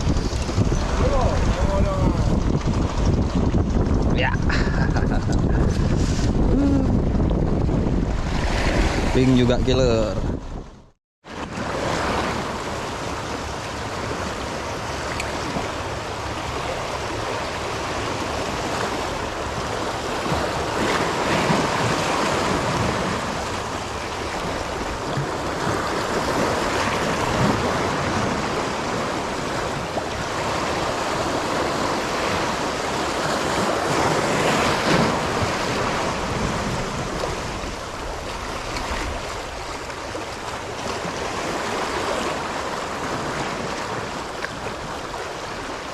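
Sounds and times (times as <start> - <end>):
wind buffeting microphone: 0.0 - 11.0, 11.6 - 45.9
sea waves washing on rocks: 11.3 - 45.9.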